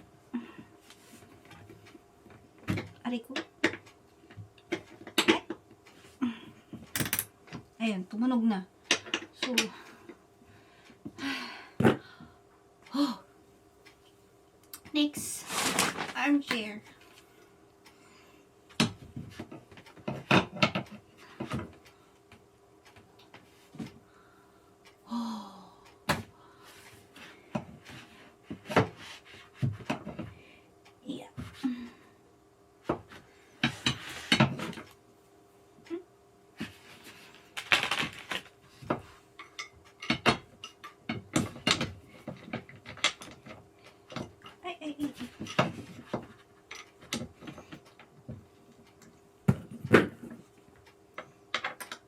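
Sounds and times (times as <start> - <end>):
faint steady hum: 0.0 - 52.0
chair parts knocking and clattering: 1.4 - 5.8, 8.9 - 9.8, 18.7 - 21.8, 27.5 - 30.4, 32.8 - 35.0, 36.6 - 50.5, 51.2 - 52.0.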